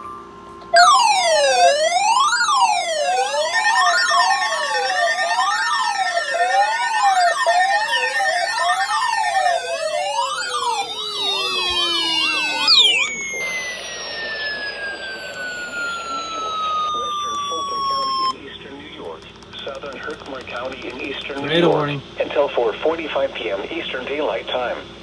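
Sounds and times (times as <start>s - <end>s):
electronic sirens wailing: 0.0s - 18.4s, 20.7s - 22.0s.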